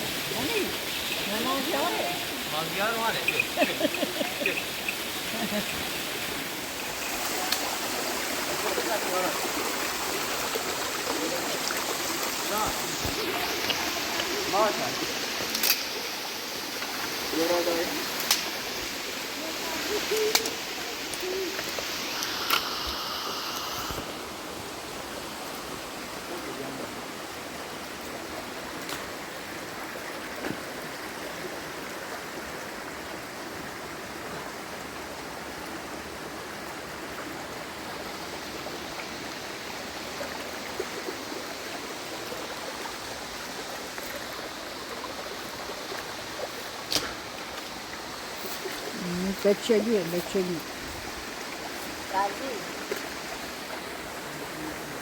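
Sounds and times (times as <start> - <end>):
water rushing: 0.0 - 55.0
faint clicks: 20.1 - 22.7.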